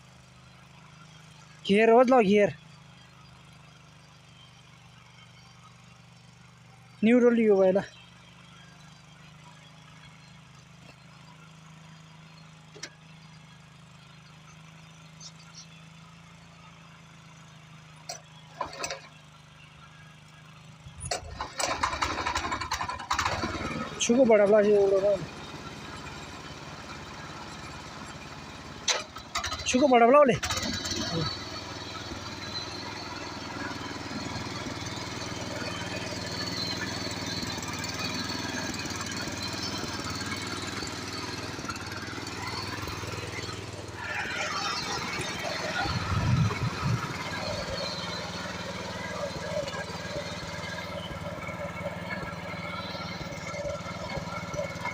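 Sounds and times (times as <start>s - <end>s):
tractor engine idling: 0.0s - 54.9s
loud rapid rattling clatter: 21.2s - 24.0s, 28.9s - 29.8s, 30.4s - 54.9s.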